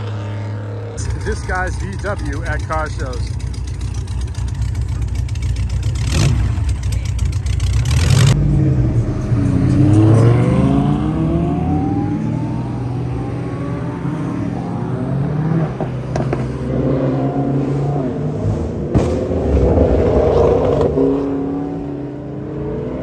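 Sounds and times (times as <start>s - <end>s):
car accelerating hard: 7.7s - 23.0s.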